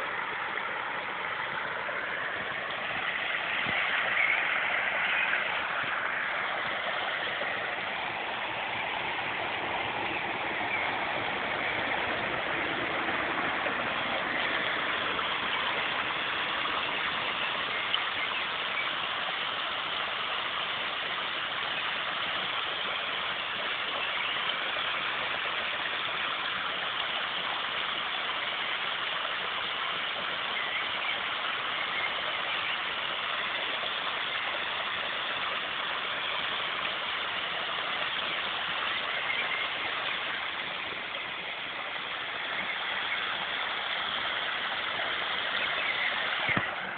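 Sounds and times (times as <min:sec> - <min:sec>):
outdoor rushing noise: 0:00.8 - 0:17.4.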